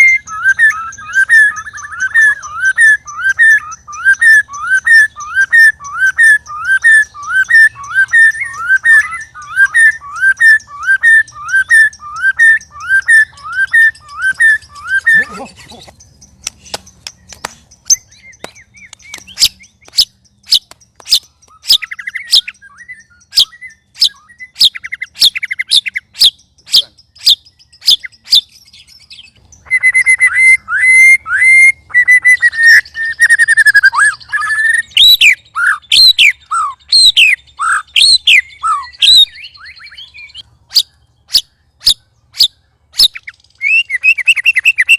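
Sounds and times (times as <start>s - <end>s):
bird ticking clicks and chatter: 0.0s - 30.7s
bird whistling calls: 0.0s - 44.9s.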